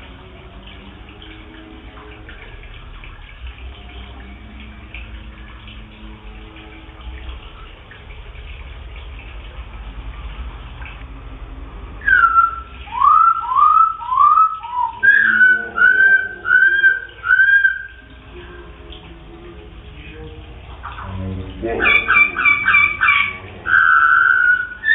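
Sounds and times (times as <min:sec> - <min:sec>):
faint water-like noise: 0:00.0 - 0:24.9
low hum: 0:00.0 - 0:24.9
bird whistling song: 0:12.0 - 0:18.1, 0:21.8 - 0:24.9.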